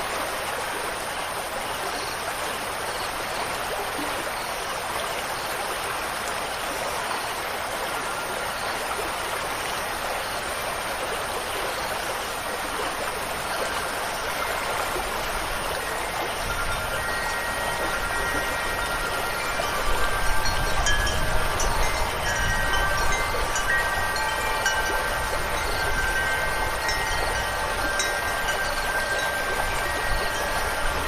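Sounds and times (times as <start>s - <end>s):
flowing water rushing: 0.0s - 31.0s
wind chime tones: 13.3s - 31.0s.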